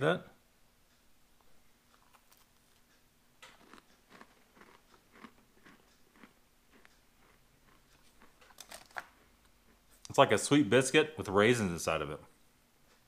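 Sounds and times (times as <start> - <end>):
person chewing crunchy biscuit: 1.9 - 10.0.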